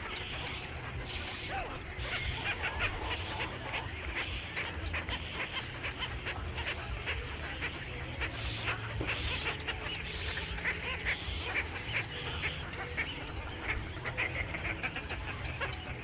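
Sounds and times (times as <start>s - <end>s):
birds chirping: 0.0s - 16.0s
steady low rumble: 0.0s - 16.0s.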